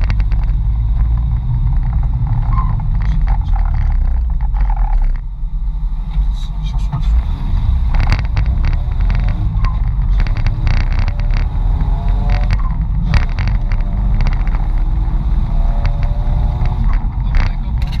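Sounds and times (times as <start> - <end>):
faint whines: 0.0 - 18.0
vehicle engine rumble from inside: 0.0 - 18.0
sharp knocks and rattles: 7.6 - 18.0.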